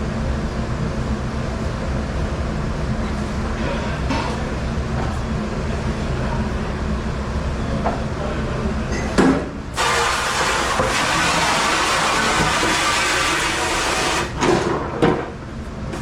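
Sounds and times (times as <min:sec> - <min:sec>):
dishwasher running: 0:08.9 - 0:16.0.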